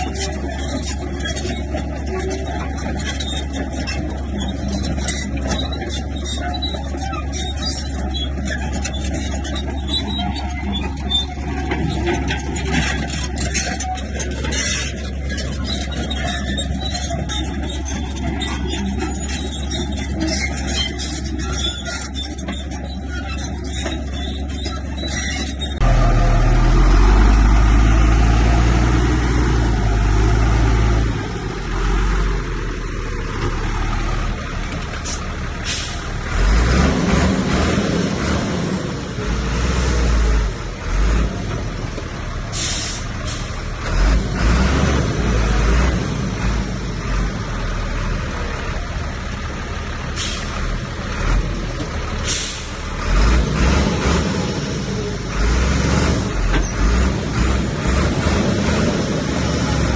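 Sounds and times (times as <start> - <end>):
heavy diesel machinery rumbling: 0.0 - 59.9.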